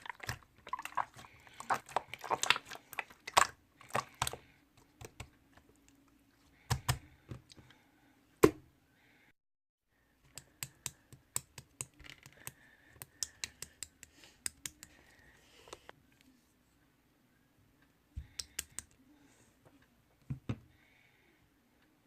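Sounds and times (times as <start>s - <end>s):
sharp clicks and taps: 10.3s - 15.0s, 18.2s - 19.0s.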